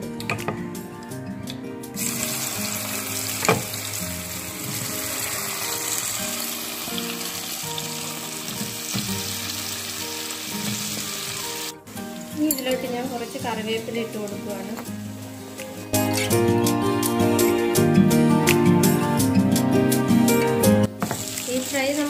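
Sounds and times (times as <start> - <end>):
background music: 0.0 - 22.0
potatoes sizzling in hot oil: 2.0 - 16.2, 20.9 - 22.0.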